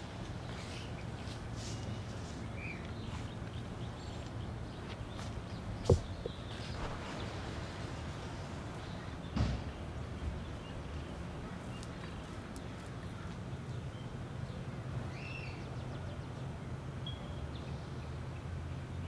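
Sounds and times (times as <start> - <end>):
thump: 9.4 - 9.7.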